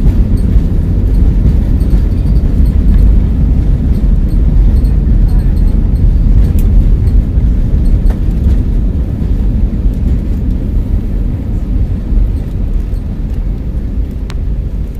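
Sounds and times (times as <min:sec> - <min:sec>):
jet engines low rumble: 0:00.0 - 0:14.9.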